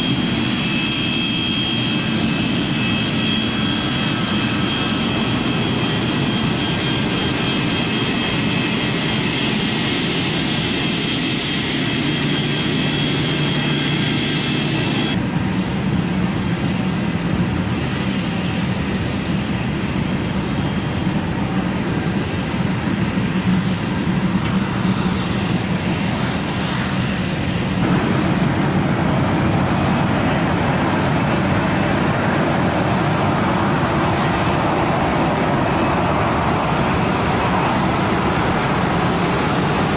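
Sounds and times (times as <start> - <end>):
high engine whine: 0.0 - 39.9
jet engines running: 0.0 - 39.9.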